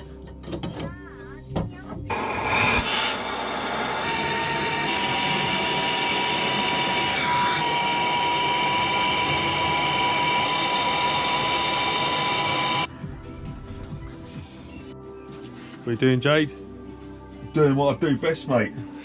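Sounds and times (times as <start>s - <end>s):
power tool motor whining: 2.1s - 12.9s.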